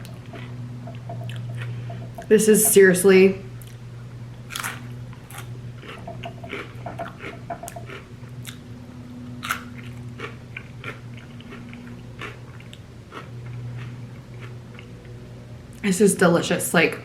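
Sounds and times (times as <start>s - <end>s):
crunchy chips chewing: 4.5s - 8.6s, 9.4s - 14.9s.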